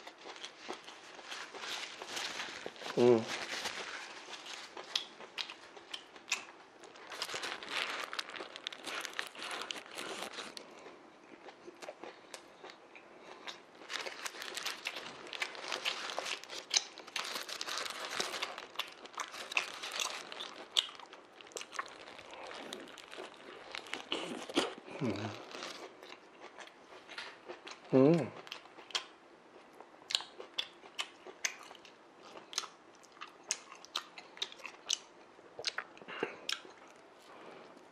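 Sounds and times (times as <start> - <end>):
biting and chewing sandwich: 0.0 - 27.8
paper wrapper crinkling: 0.1 - 5.1, 6.8 - 10.6, 13.8 - 25.9.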